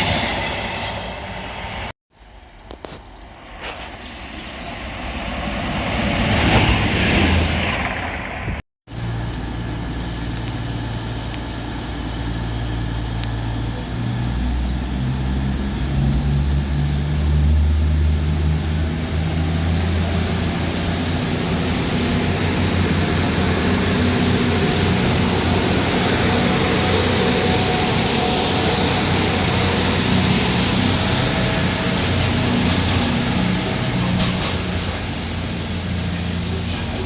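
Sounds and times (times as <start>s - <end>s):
diesel train engine humming: 8.1s - 37.0s.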